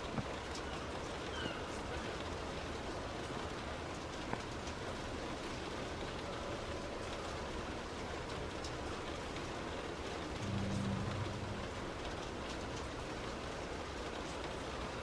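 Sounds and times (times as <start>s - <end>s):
heavy rain on a moving car: 0.0s - 15.0s
low hum: 10.3s - 12.8s.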